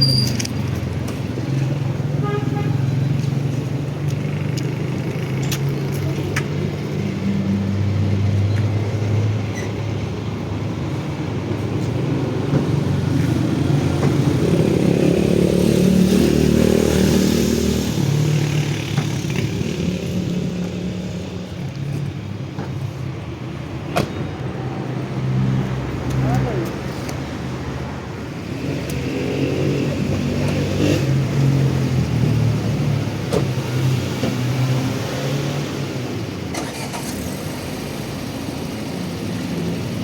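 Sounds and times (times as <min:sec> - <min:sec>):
vehicle engines in traffic: 0:00.0 - 0:40.0.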